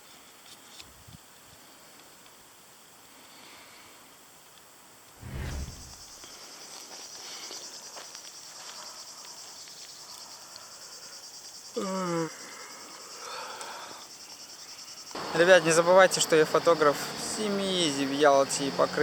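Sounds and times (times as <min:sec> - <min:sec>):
insects chirring: 0:05.9 - 0:19.0.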